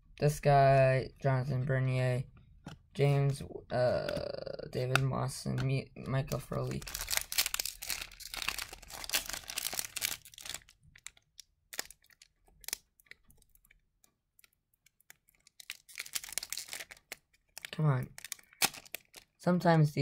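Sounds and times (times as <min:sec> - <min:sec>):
foil wrapper crinkling and tearing: 0:06.5 - 0:13.8, 0:14.4 - 0:19.4
cards being handled: 0:14.4 - 0:19.3.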